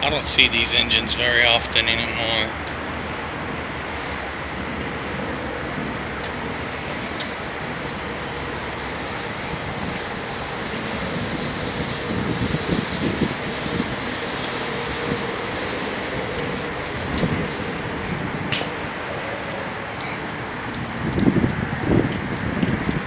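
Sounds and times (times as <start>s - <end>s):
diesel locomotive idling: 0.0s - 23.0s
faint steady hum: 0.0s - 23.0s
fan and blower noise: 0.0s - 23.0s
uneven low rumbling: 0.0s - 23.0s.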